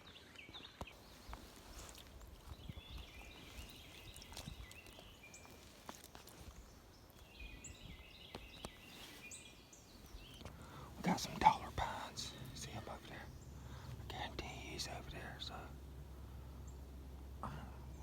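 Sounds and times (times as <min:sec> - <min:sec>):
songbird chirping: 0:00.0 - 0:18.0
light clicks and crackles: 0:00.8 - 0:07.3.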